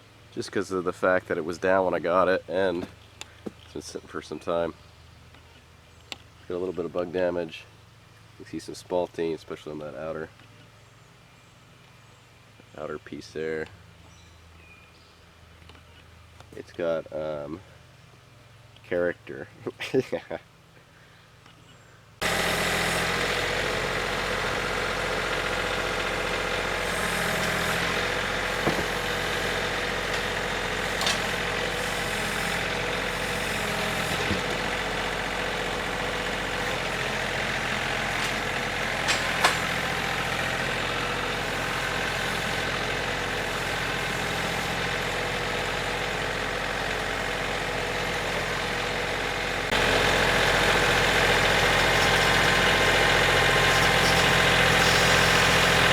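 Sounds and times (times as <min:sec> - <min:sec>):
sawmill engine sawing log: 0:22.2 - 0:55.9.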